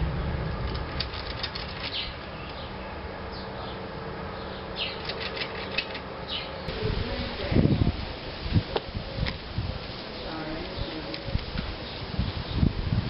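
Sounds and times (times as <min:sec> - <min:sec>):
steady low hum: 0:00.0 - 0:13.0
small birds chirping: 0:01.7 - 0:08.0, 0:10.0 - 0:12.8.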